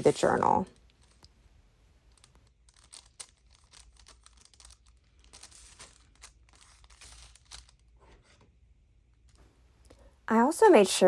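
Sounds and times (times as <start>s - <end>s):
paper rustling and crinkling: 2.1s - 8.5s.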